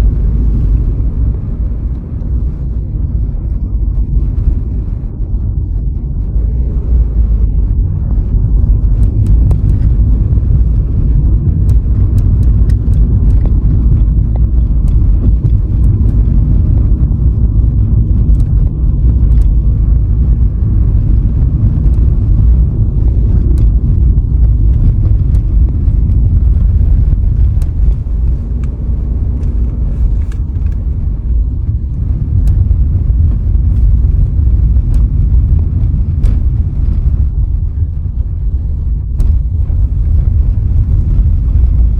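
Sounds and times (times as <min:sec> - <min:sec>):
tyre and road rumble: 0:00.0 - 0:41.9
light ticks: 0:08.8 - 0:20.4, 0:21.0 - 0:28.8.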